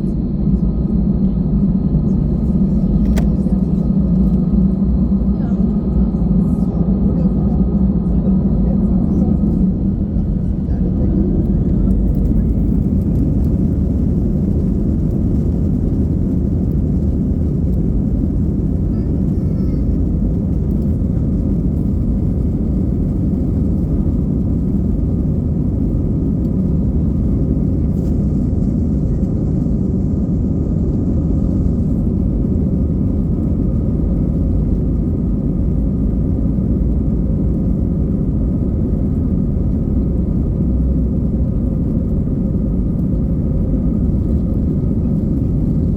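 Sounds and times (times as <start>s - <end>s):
faint engine tones: 0.0s - 45.9s
jet engine rumble in cabin: 0.0s - 45.9s.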